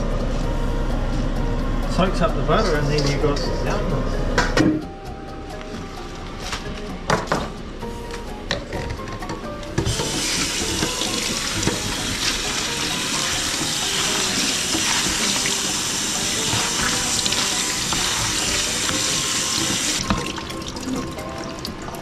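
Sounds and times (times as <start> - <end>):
fish sizzling in frying pan: 9.8 - 21.4.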